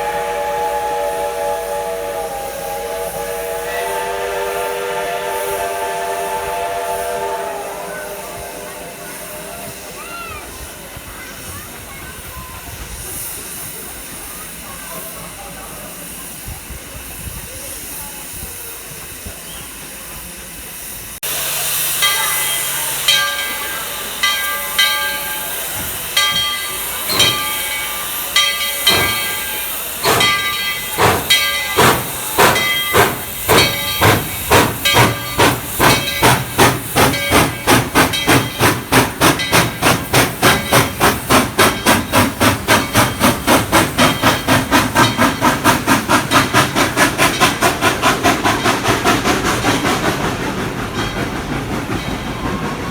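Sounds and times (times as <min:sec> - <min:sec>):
steam hissing: 0:00.0 - 0:52.9
steam locomotive exhaust chuffs: 0:00.0 - 0:52.9.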